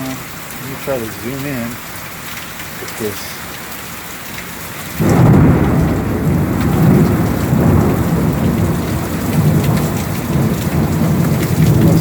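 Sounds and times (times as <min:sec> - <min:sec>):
heavy rain: 0:00.0 - 0:12.0
rolling thunder: 0:05.0 - 0:12.0.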